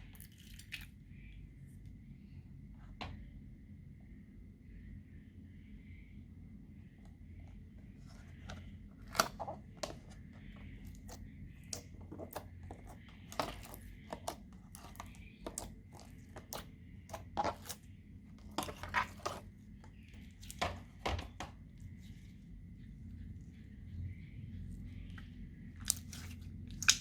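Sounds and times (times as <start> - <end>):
faint steady hum: 0.0 - 27.0
slime clicking and popping: 25.9 - 27.0.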